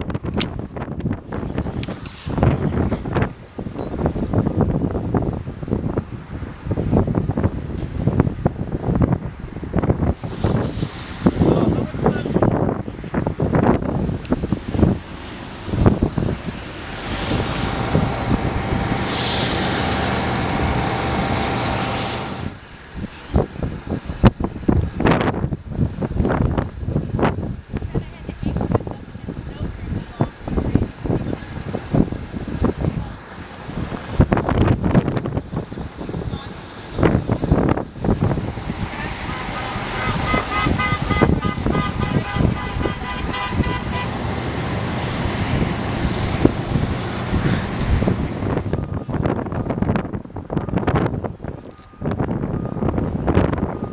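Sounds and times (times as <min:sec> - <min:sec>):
traffic rumble: 0:00.0 - 0:53.9
wind on microphone: 0:00.0 - 0:53.9
vehicle driving past: 0:14.6 - 0:22.6, 0:38.4 - 0:48.8
horn beeping short toots: 0:39.2 - 0:44.2.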